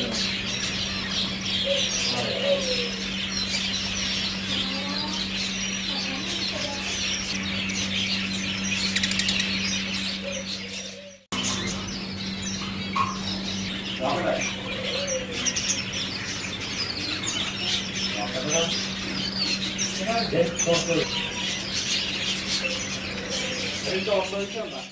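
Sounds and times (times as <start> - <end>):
small birds chirping: 0.0 - 24.9
steady low hum: 0.0 - 24.9.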